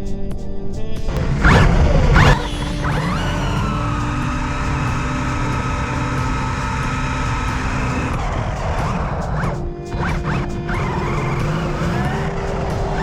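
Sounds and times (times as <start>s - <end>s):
rc car electric motor whine: 1.1s - 13.0s.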